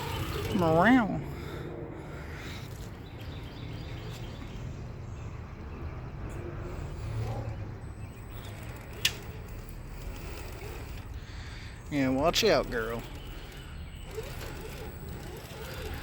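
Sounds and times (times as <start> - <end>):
electric motor low drone: 0.0 - 4.0, 6.7 - 16.0.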